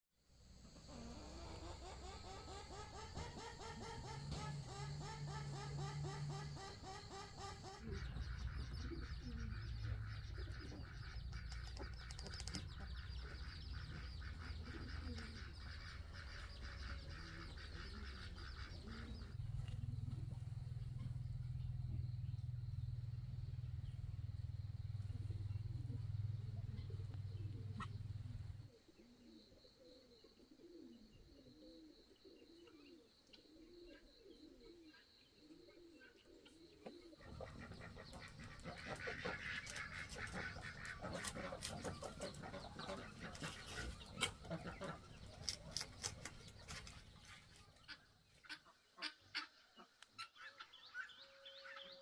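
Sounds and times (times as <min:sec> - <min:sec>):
poultry calling: 0:00.7 - 0:29.2, 0:32.4 - 0:52.0
low hum: 0:03.9 - 0:28.7.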